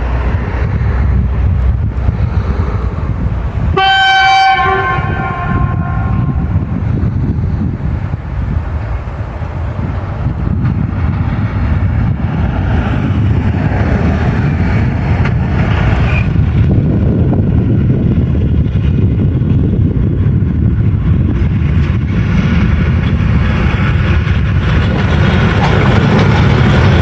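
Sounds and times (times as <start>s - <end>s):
train passing rumble: 0.0s - 27.0s.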